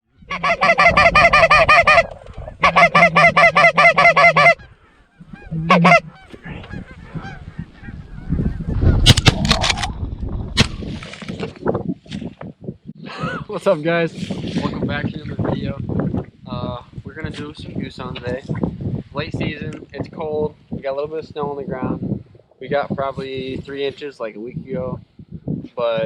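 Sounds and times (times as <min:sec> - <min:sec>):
wind noise: 0:00.1 - 0:26.0
goose honks and clucks: 0:00.2 - 0:08.9
sharp cracks: 0:08.9 - 0:11.5.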